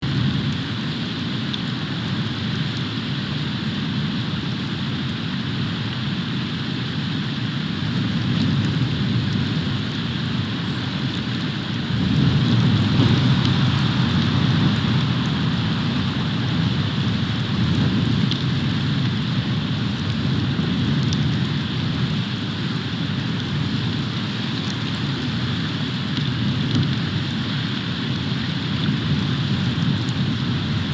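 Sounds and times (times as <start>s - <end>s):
wind buffeting microphone: 7.6s - 30.9s.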